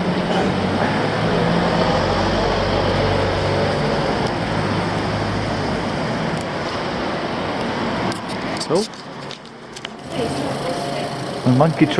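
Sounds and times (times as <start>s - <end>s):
steady rushing noise: 0.0s - 11.9s
vehicle engine hum: 0.0s - 11.9s.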